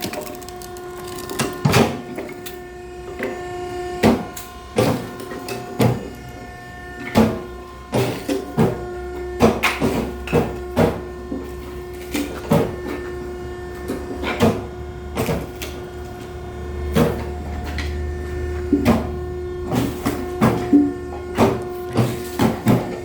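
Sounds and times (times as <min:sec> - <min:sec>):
wood pieces knocking and clattering: 0:00.0 - 0:02.6
firewood splitting machine humming: 0:00.0 - 0:23.0.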